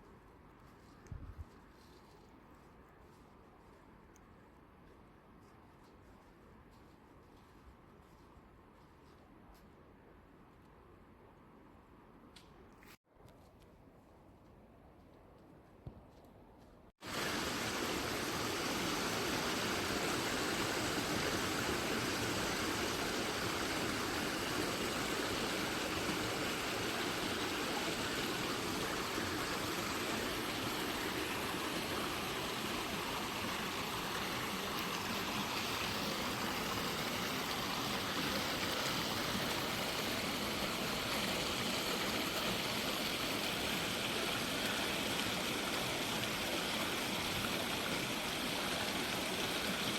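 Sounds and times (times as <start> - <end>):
mountain stream rushing: 17.0 - 49.9.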